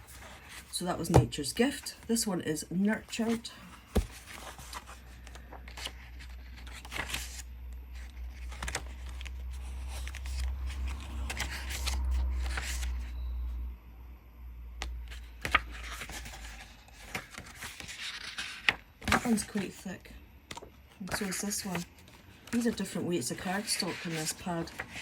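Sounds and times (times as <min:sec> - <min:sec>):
paper pages flipping: 0:03.2 - 0:13.1, 0:14.8 - 0:19.8, 0:20.5 - 0:25.0.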